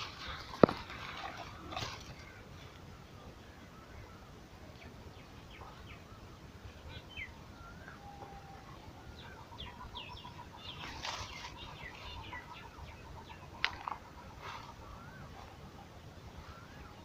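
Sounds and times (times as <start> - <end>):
small birds chirping: 0.1 - 17.0
rapid pulsing bird call: 5.6 - 17.0.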